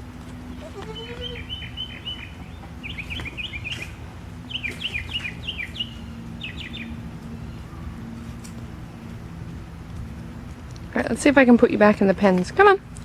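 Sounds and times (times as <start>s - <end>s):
steady low hum: 0.0s - 13.0s
small bird chirping: 0.5s - 7.6s.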